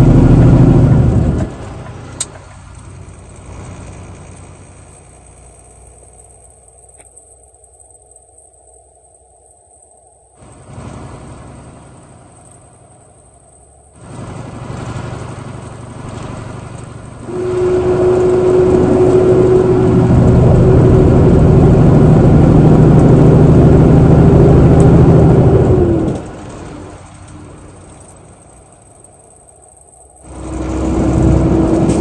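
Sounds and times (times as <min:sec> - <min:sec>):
truck engine pulling under load: 0:00.0 - 0:07.0, 0:13.9 - 0:32.0.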